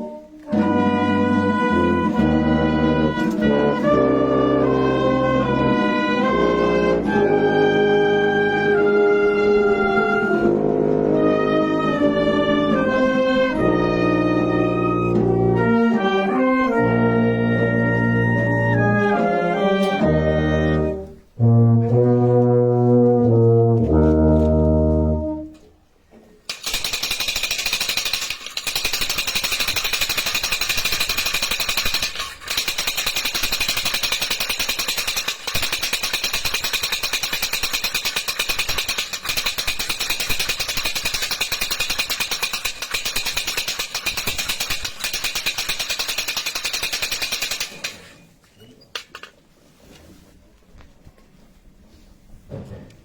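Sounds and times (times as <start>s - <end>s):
brass band low chords: 0.0s - 25.6s
wooden ratchet rattle clattering: 26.5s - 48.3s, 49.0s - 49.4s.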